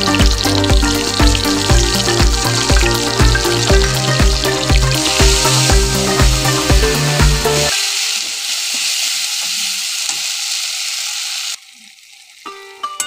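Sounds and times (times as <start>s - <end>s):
background music with a beat: 0.0s - 7.7s
food sizzling in hot oil: 0.0s - 13.0s.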